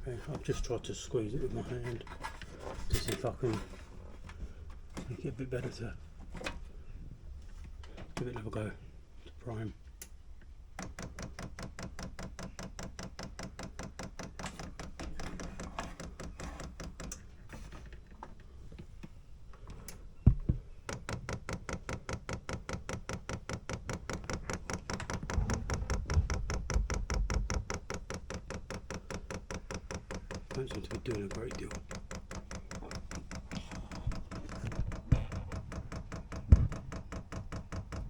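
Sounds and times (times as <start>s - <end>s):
fuel pump clicking rapidly: 20.8s - 38.0s
loud thump: 36.5s - 36.8s.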